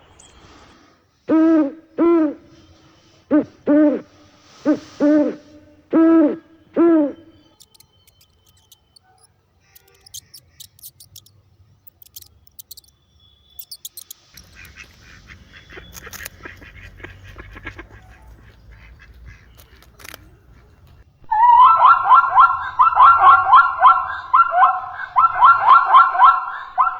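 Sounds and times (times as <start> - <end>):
loud hooting animal calls: 3.3 - 11.3, 11.9 - 12.9, 21.3 - 26.9
faint high chirps and clicks: 7.4 - 15.0, 15.6 - 17.2, 18.0 - 21.0.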